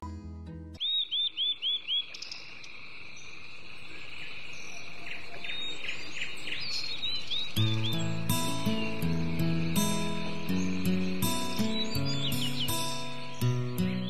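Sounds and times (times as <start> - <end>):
bird calling: 0.8 - 14.0
high insect drone: 7.6 - 13.5.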